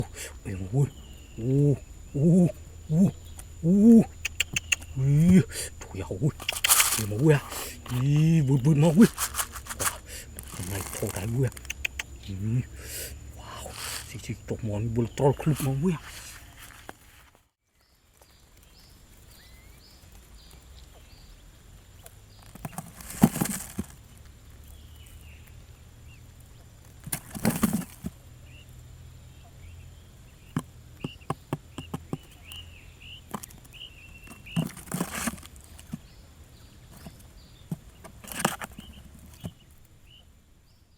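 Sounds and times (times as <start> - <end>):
faint high chirps: 0.0 - 9.3
scattered clicks: 3.2 - 5.0, 6.2 - 8.1, 9.0 - 12.3
bird wings flapping: 6.3 - 8.0, 8.9 - 11.6.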